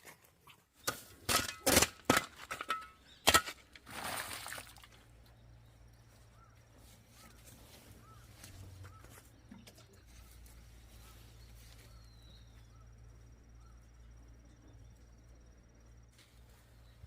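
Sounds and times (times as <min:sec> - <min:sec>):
steady low hum: 0:05.0 - 0:17.0.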